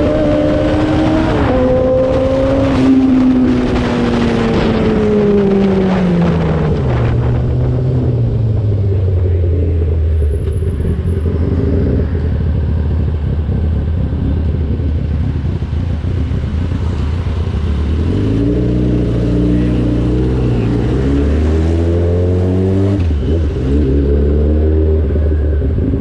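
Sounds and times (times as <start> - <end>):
motorcycle engine running: 7.0 - 21.1.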